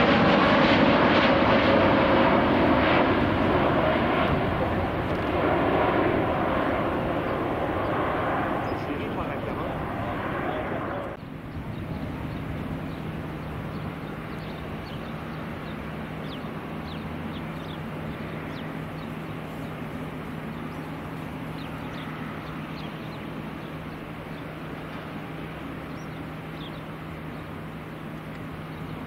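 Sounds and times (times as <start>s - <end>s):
steady low hum: 0.0s - 29.0s
small birds chirping: 6.5s - 29.0s.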